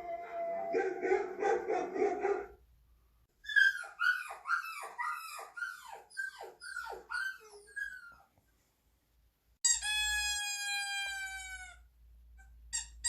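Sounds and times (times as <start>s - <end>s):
high dog yelps: 0.0s - 2.6s, 3.4s - 8.3s.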